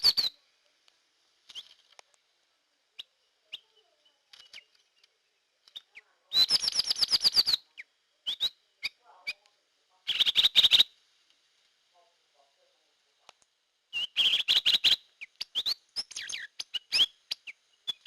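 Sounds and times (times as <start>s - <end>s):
drongo chirps: 0.0s - 0.8s, 1.4s - 2.2s, 2.9s - 11.0s, 13.9s - 18.0s.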